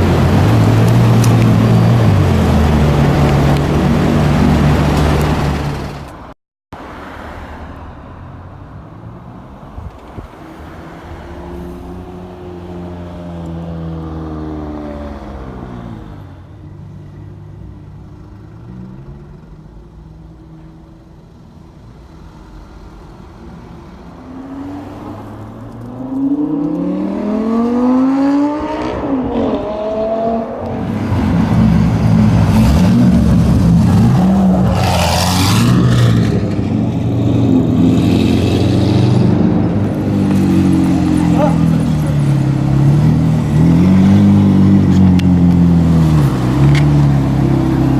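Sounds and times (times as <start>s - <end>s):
car accelerating hard: 0.0s - 6.1s, 24.2s - 47.9s
car engines running in traffic: 0.0s - 47.9s.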